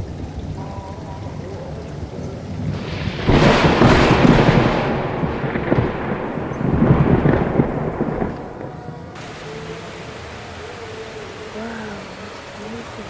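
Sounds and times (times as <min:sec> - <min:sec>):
thunder clap and rumble: 0:00.0 - 0:11.7
rain: 0:00.0 - 0:13.0.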